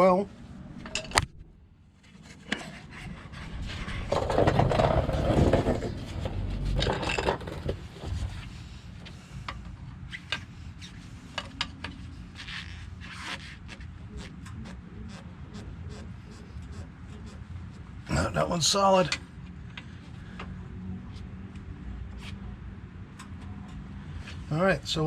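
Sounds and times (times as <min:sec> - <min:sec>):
scraping and shuffling: 0:02.0 - 0:09.2.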